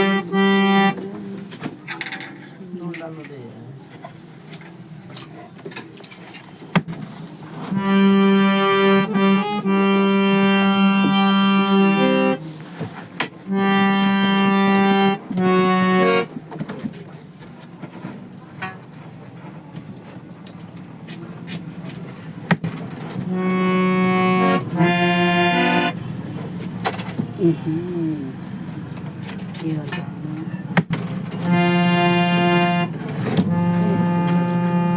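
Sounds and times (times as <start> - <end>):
harmonium held notes: 0.0 - 1.5, 7.6 - 12.7, 13.4 - 16.4, 23.2 - 26.6, 31.3 - 34.9.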